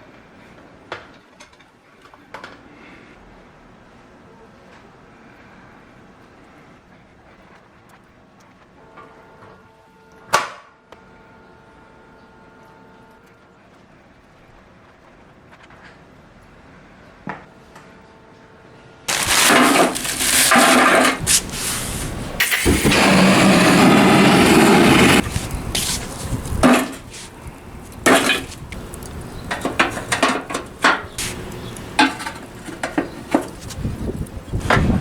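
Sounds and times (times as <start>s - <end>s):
loud steady noise: 19.1s - 33.7s
hard objects knocking and scraping: 19.1s - 33.9s.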